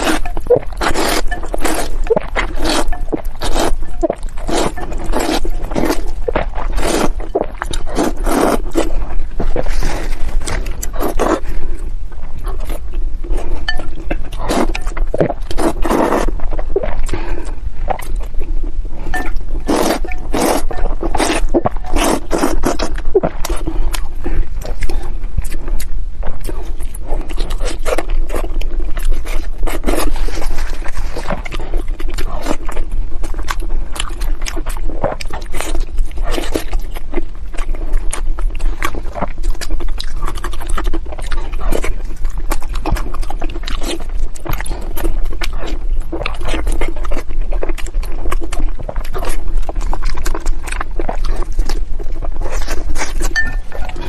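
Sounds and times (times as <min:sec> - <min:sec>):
low hum: 0:00.0 - 0:35.0, 0:49.6 - 0:54.0
wet chewing and mouth smacks: 0:00.0 - 0:54.0.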